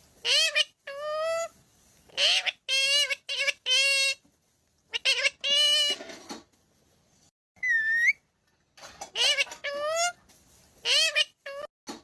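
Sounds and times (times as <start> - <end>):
parrot making voice-like calls: 0.2 - 4.2, 4.9 - 6.0, 9.1 - 10.2, 10.8 - 11.7.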